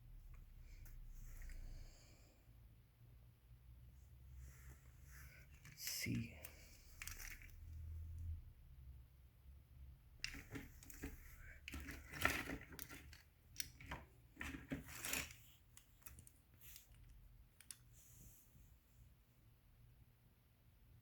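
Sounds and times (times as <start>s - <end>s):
belts and metal connectors clicking: 5.4s - 7.9s, 10.2s - 17.9s.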